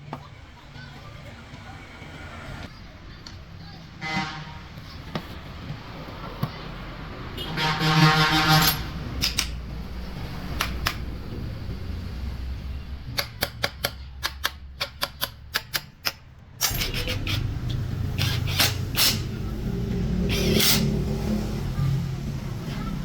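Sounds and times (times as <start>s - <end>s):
sharp clicks: 9.2s - 9.6s, 10.5s - 11.1s, 13.1s - 19.2s.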